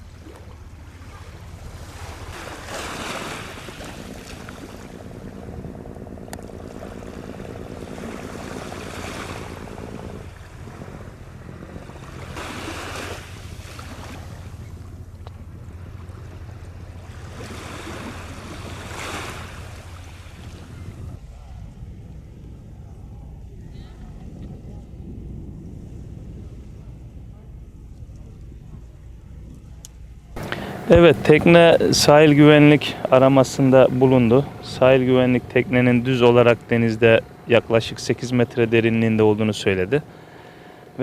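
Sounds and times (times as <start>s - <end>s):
waves splashing: 0.0s - 21.6s, 30.4s - 41.0s
wind on microphone: 0.0s - 37.9s
boat engine humming: 0.0s - 41.0s.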